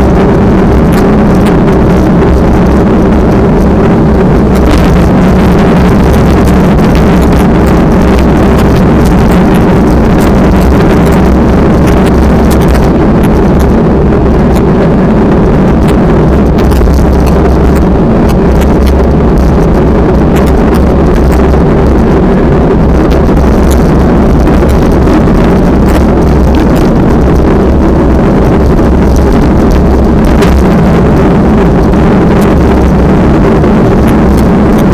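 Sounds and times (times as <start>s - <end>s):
steady low hum: 0.0s - 34.9s
wind buffeting microphone: 0.0s - 34.9s.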